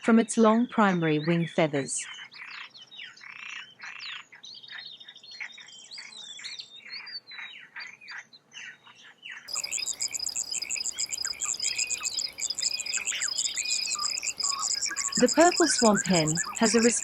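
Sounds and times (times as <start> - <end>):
birds chirping: 9.5 - 17.0
insects shrilling: 9.5 - 17.0.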